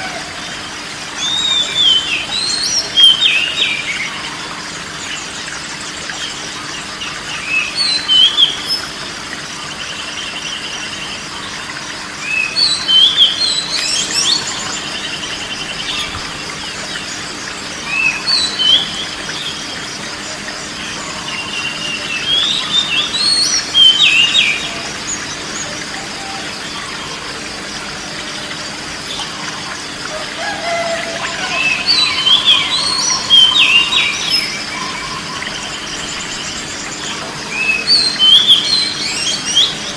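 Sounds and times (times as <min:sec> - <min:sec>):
steady background hiss: 0:00.0 - 0:39.9
songbird whistles and trills: 0:01.2 - 0:04.2, 0:12.2 - 0:19.8, 0:20.9 - 0:27.4, 0:30.1 - 0:39.9.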